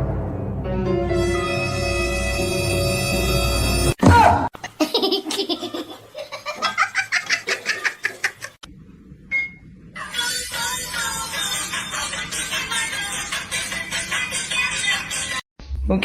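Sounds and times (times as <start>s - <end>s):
music: 0.0s - 4.0s, 10.2s - 15.4s
person laughing hard: 4.6s - 8.6s.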